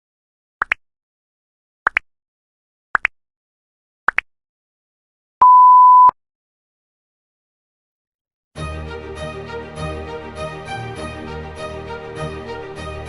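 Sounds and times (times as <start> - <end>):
double chirp beeps: 5.4 - 6.1
long steady beep: 5.4 - 6.1.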